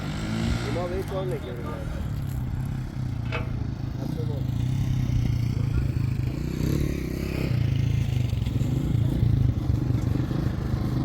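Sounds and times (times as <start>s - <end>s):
faint scraping and clattering: 2.2s - 4.0s.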